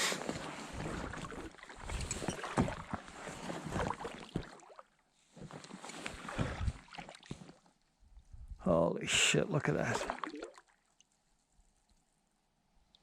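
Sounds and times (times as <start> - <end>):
paddle splashing in water: 5.8 - 7.4, 9.8 - 10.6.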